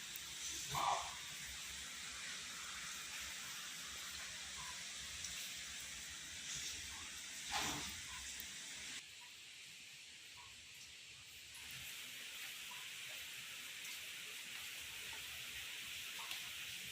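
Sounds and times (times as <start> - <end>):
gravy sizzling in a pan: 0.0 - 16.9.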